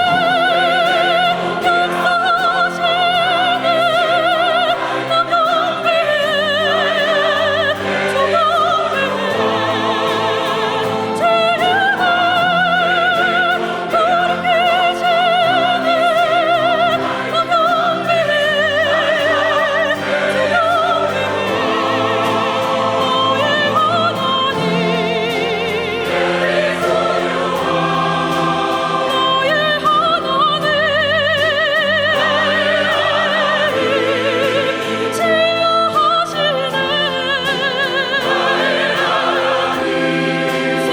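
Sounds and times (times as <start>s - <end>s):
chamber orchestra: 0.0s - 40.9s
choir singing held notes: 0.0s - 40.9s.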